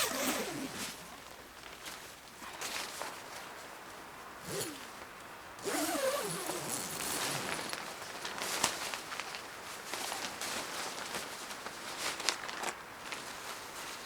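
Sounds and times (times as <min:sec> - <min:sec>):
rasping zipper-like handling noises: 0:00.0 - 0:01.3, 0:04.4 - 0:05.0, 0:05.6 - 0:08.7.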